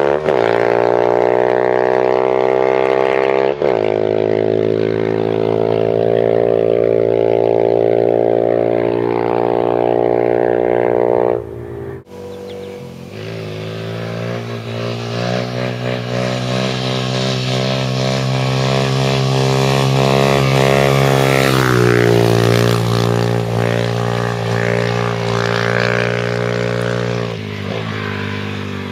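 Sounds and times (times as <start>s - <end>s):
motorcycle engine running loud: 0.0s - 28.9s.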